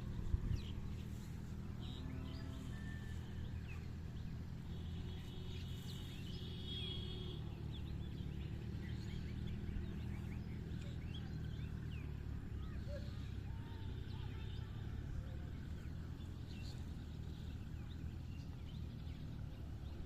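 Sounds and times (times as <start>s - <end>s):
steady low rumble: 0.0s - 4.8s
small birds chirping: 0.0s - 20.0s.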